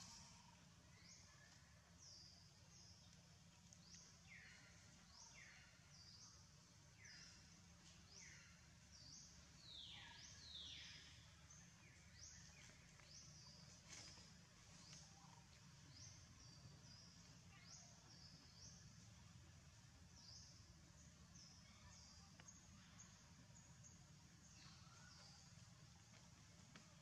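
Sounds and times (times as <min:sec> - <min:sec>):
low steady hum: 0:00.0 - 0:27.0
faint bird chirps: 0:03.8 - 0:19.3, 0:20.1 - 0:25.6.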